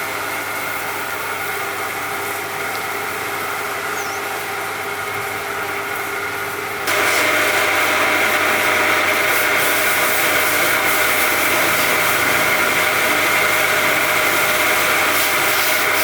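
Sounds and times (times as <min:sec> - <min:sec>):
power tool whining: 0:06.9 - 0:16.0.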